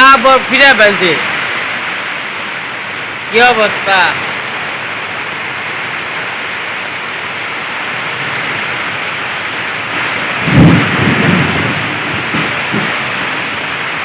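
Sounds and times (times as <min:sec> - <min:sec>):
heavy rain pouring: 0:00.0 - 0:14.0
thunder rumble: 0:08.4 - 0:14.0.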